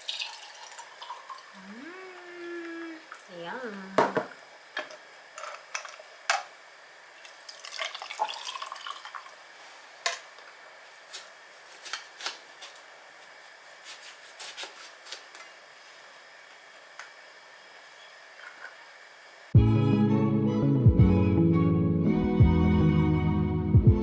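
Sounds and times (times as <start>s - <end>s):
liquid pouring into glass: 0.0s - 1.6s, 7.4s - 9.4s.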